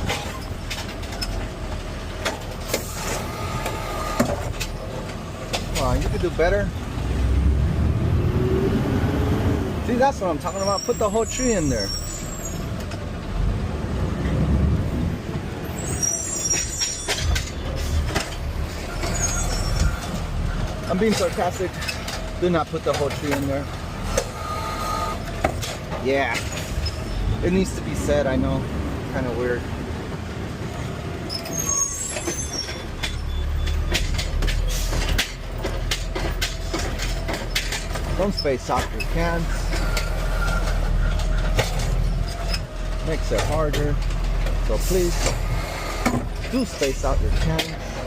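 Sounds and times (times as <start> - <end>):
metal clanks and knocks: 0.0 - 3.2, 16.5 - 24.4, 25.2 - 27.2, 32.1 - 45.4, 46.0 - 48.0
diesel engine rumbling: 0.0 - 48.0
high metallic squeals: 10.4 - 12.8, 15.6 - 18.1, 18.7 - 22.2, 24.0 - 25.4, 26.5 - 27.4, 31.3 - 35.0, 37.1 - 42.7
brief high squeal: 10.5 - 12.7, 15.8 - 17.3, 18.9 - 20.0, 31.3 - 33.8.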